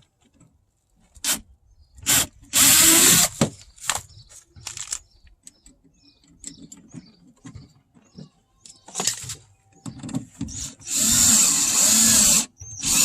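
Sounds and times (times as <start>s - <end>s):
power drill driving a screw: 2.0s - 3.4s, 10.5s - 13.0s.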